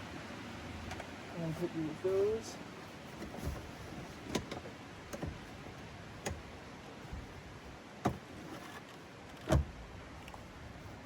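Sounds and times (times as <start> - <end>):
car parts knocking and clicking: 3.2 - 5.5, 8.0 - 8.2.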